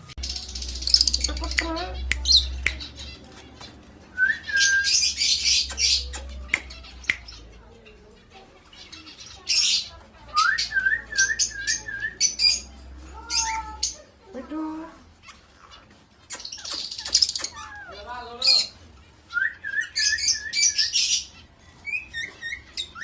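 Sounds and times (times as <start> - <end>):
parrot squawking and whistling: 19.3 - 21.3.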